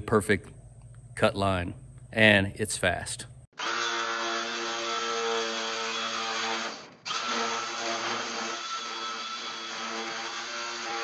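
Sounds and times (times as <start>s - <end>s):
electric metal shear whining: 3.6s - 11.0s.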